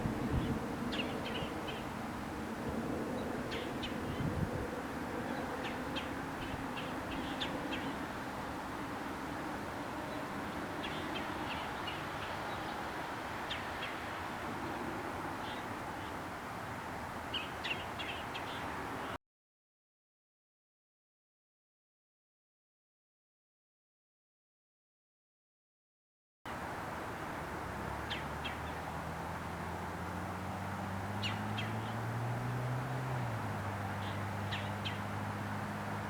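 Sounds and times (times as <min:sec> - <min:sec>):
birds calling: 0:05.2 - 0:08.1, 0:09.9 - 0:16.3, 0:17.3 - 0:19.2, 0:27.9 - 0:32.2, 0:32.9 - 0:35.2.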